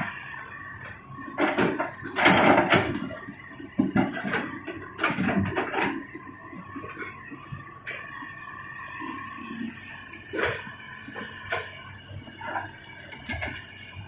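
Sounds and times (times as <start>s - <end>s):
clatter of knocks and scrapes: 1.4s - 3.1s, 3.8s - 6.0s.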